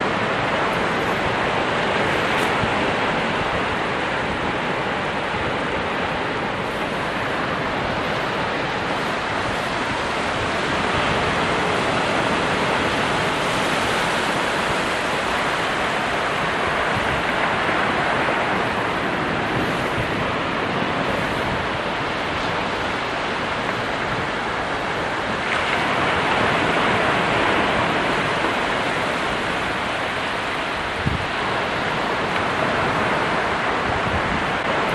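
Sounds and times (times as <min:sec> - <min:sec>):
ocean waves breaking: 0:00.0 - 0:34.9.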